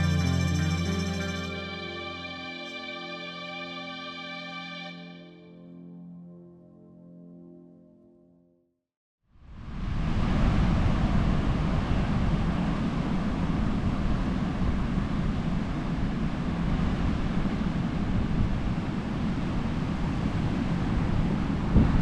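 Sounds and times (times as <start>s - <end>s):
wind on microphone: 9.5s - 22.0s.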